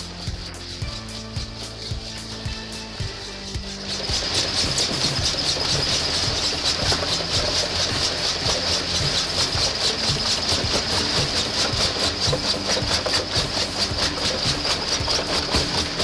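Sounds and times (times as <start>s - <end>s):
crushing machine engine hum: 0.0s - 16.0s
rhythmic machine clatter: 0.0s - 16.0s.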